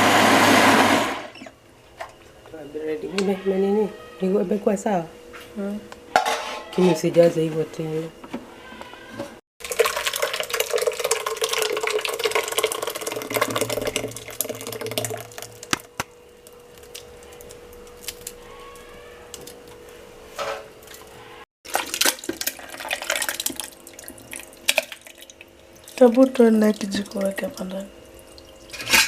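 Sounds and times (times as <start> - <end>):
dishes clinking: 6.1 - 7.0
water running and splashing: 9.6 - 15.8, 21.7 - 28.9.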